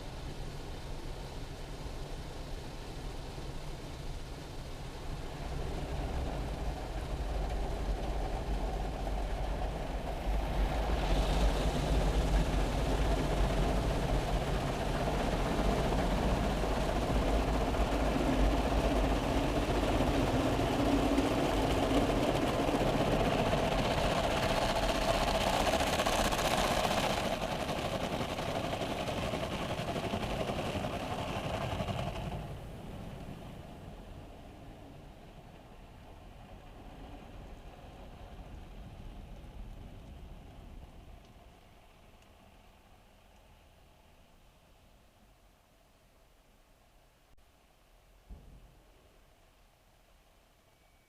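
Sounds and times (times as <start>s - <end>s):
car wash washing noise: 0.0s - 41.1s
car wash motor hum: 0.0s - 43.3s.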